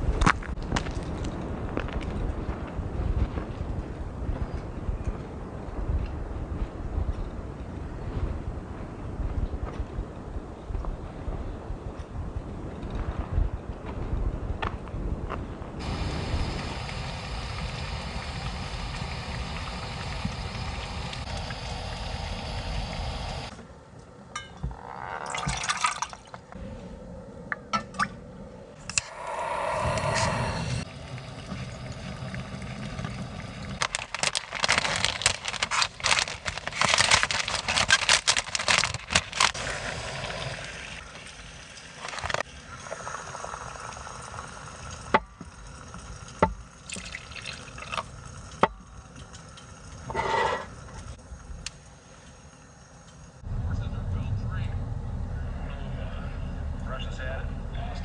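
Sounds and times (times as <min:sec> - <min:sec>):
water pouring and dripping: 0:15.8 - 0:23.5, 0:25.2 - 0:26.5, 0:29.0 - 0:37.6, 0:38.8 - 0:51.2
crackling: 0:28.9 - 0:39.8.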